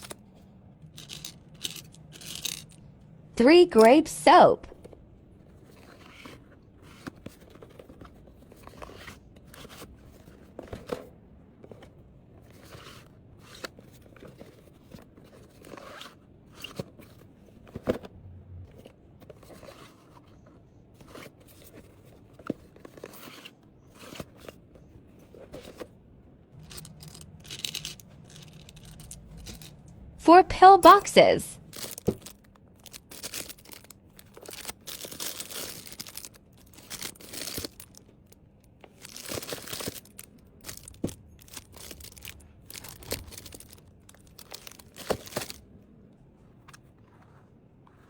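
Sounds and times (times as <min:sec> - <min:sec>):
packaging rustling: 0:26.6 - 0:29.9, 0:31.6 - 0:45.6.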